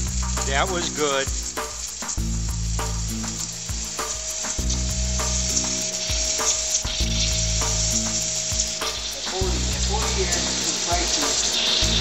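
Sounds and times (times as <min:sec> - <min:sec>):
electrical discharge crackling: 0:00.0 - 0:12.0
low hum: 0:02.2 - 0:10.7
thin steady tone: 0:02.8 - 0:12.0.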